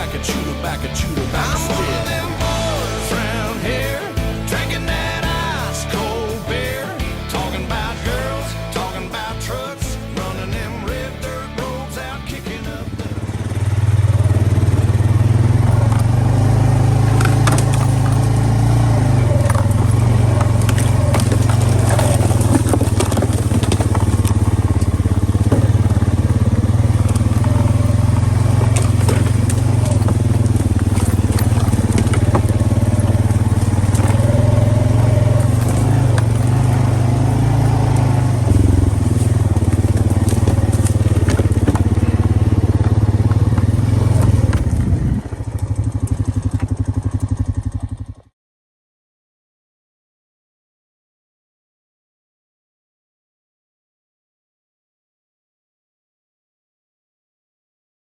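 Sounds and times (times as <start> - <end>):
motor running steadily: 13.0 - 46.2.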